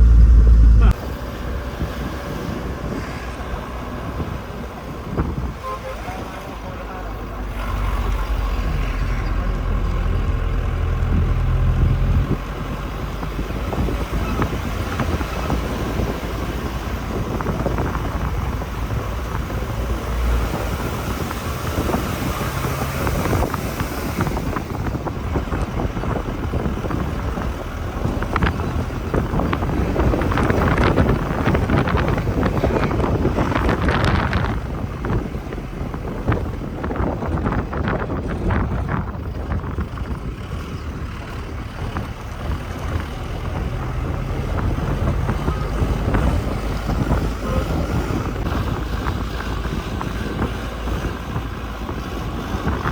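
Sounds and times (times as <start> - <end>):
deep rumble: 0.0 - 2.6
vehicle running: 0.0 - 52.9
wind buffeting the microphone: 0.0 - 52.9.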